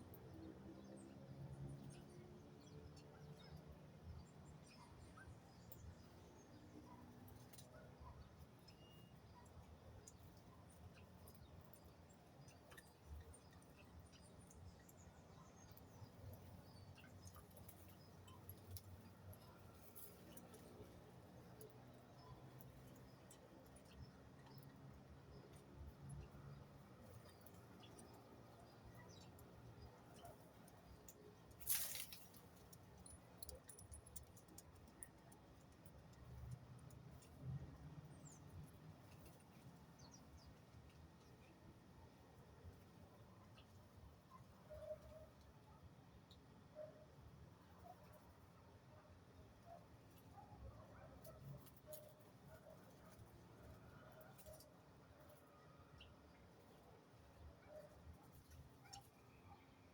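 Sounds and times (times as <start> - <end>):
faint bird chirps: 7.7 - 9.5
brief rustle: 31.6 - 33.9.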